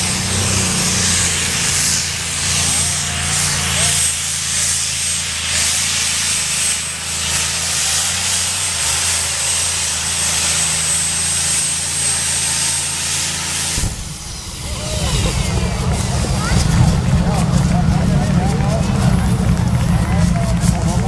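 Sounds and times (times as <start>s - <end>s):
tractor engine running: 0.0s - 21.0s
loud hiss: 13.4s - 16.3s.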